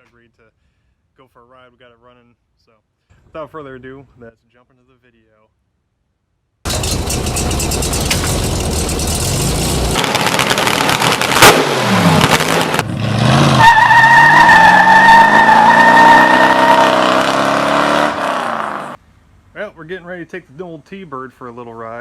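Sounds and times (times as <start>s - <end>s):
sharp crack: 6.7s - 12.9s
car engine revving: 6.7s - 19.0s
tire squeal: 13.3s - 19.0s.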